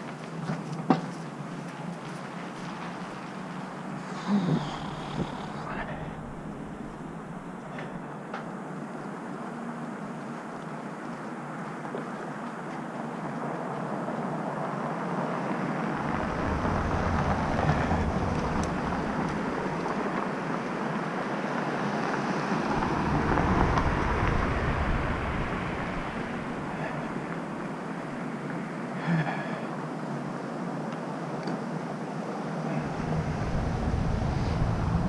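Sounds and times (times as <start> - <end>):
street traffic noise: 0.0 - 35.0
vehicles passing with deep rumble: 1.4 - 35.0.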